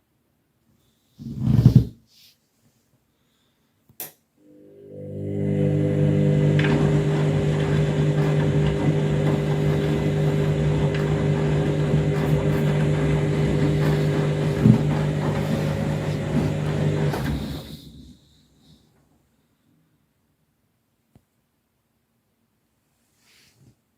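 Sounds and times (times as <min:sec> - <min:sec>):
washing machine motor hum: 0:04.4 - 0:18.3
water and laundry swishing: 0:05.8 - 0:18.1.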